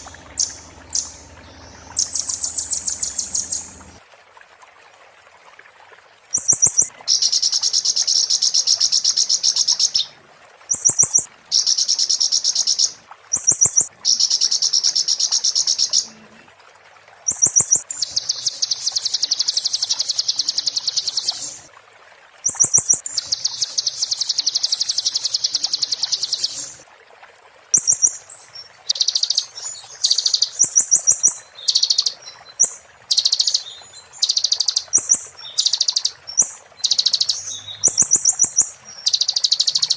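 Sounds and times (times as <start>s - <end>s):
bird singing rapid trills: 0.0s - 4.0s, 17.3s - 21.6s, 22.5s - 26.8s, 27.8s - 39.9s.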